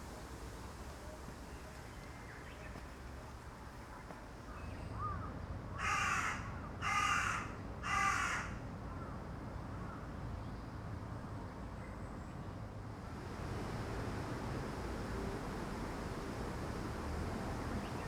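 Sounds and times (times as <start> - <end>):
crow cawing: 5.8 - 8.6.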